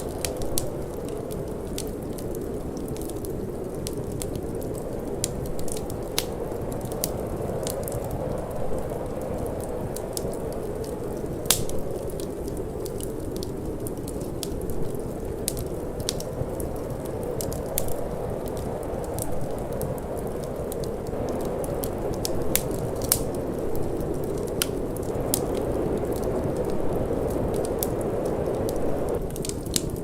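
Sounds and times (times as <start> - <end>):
wind rushing: 0.0 - 29.3
wood fire crackling and popping: 0.0 - 30.0.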